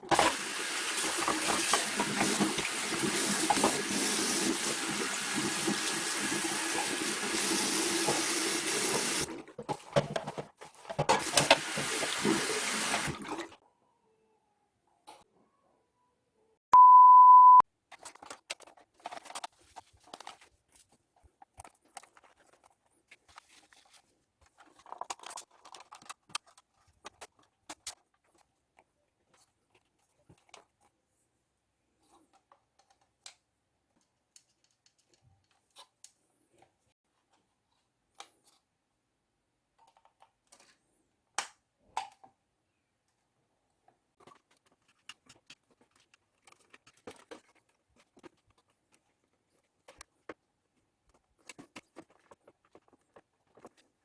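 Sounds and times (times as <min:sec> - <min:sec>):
electronic beep: 0:16.8 - 0:17.6.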